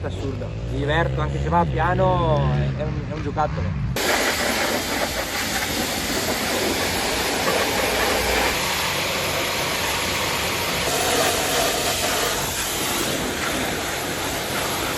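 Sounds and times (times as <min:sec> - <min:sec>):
two-stroke motorcycle engine: 0:00.0 - 0:14.9.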